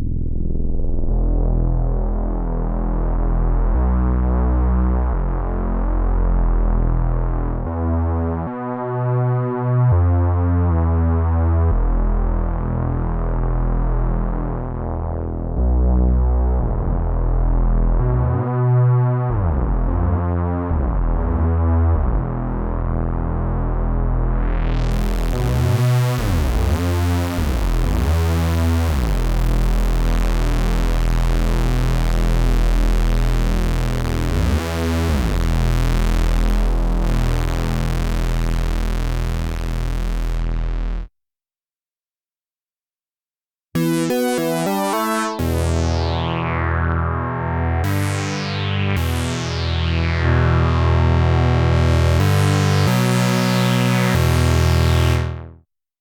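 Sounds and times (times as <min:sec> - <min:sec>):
deep synth bass with filter sweeps: 0:00.0 - 0:41.1, 0:43.8 - 0:55.6
short synth bass notes: 0:11.3 - 0:41.1, 0:43.8 - 0:55.6.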